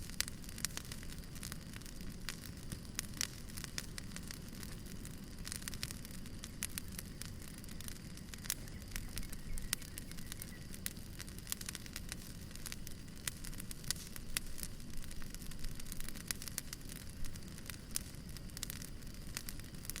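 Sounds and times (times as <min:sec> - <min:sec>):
firewood crackling and popping: 0:00.0 - 0:20.0
low rumble of flames: 0:00.0 - 0:20.0.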